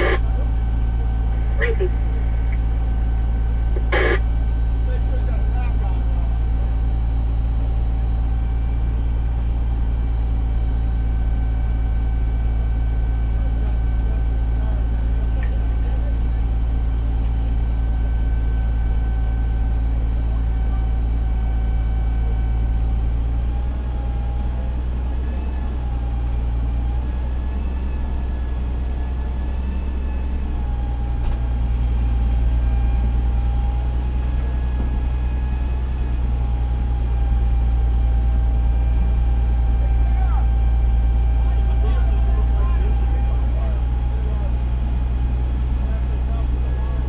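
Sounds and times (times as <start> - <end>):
steady whine: 0.0 - 7.3
diesel engine running: 0.0 - 47.0.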